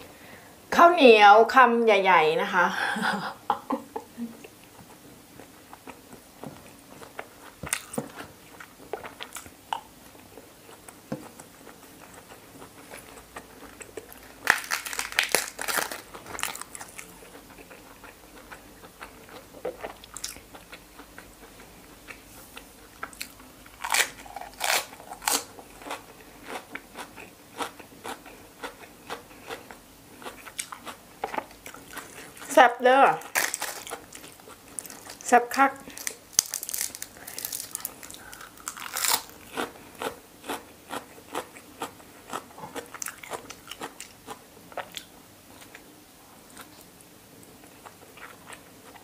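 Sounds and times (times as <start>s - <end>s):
crunchy vegetable bites: 13.7s - 17.1s, 23.0s - 29.6s, 33.2s - 35.2s, 35.9s - 45.1s.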